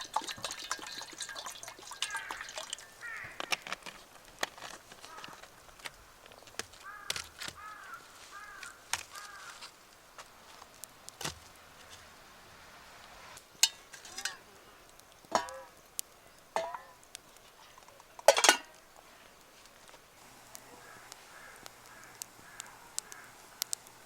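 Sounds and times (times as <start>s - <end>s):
crow cawing: 1.9s - 3.7s, 5.0s - 5.4s, 6.8s - 9.7s, 20.6s - 23.8s.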